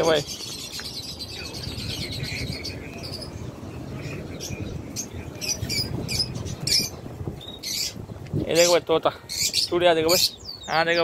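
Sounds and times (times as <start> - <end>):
caged birds chirping: 0.0 - 11.0.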